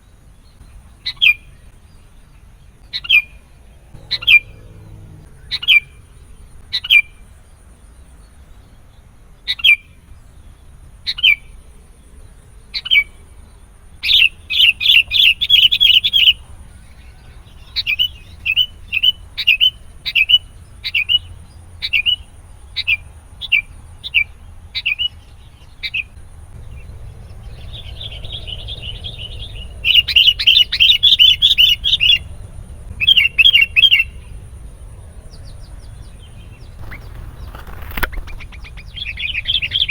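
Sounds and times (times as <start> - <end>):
bird calling and chattering: 4.0 - 7.2, 14.0 - 16.5, 25.8 - 34.4, 35.3 - 39.9.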